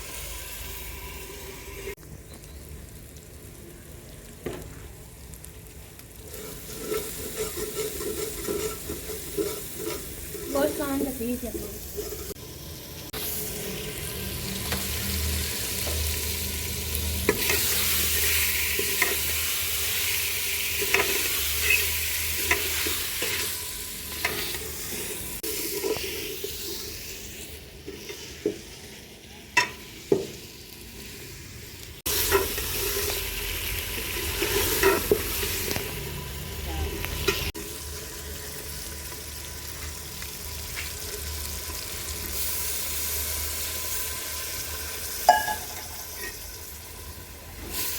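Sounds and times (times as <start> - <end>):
meat sizzling in a pan: 0.0 - 47.9
spatula scraping and knocking pan: 6.3 - 12.4, 33.9 - 35.6.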